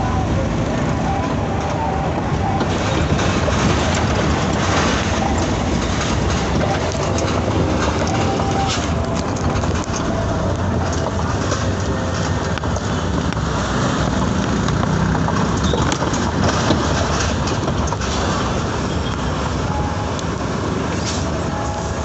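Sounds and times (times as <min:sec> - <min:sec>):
truck engine drone: 0:00.0 - 0:22.0
tyre and wind noise: 0:01.6 - 0:22.0.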